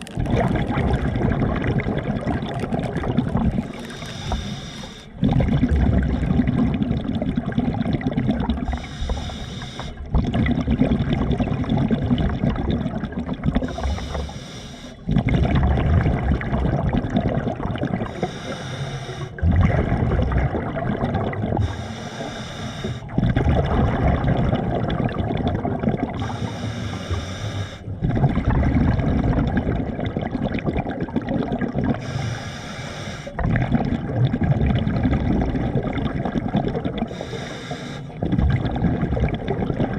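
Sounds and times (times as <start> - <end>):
water sloshing and gurgling: 0.0 - 39.9.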